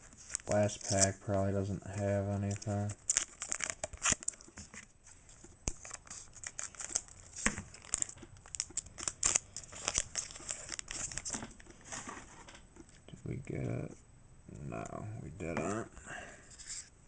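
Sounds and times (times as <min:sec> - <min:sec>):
cards rustling: 0:00.0 - 0:13.8
foil wrapper crinkling and tearing: 0:00.1 - 0:12.0.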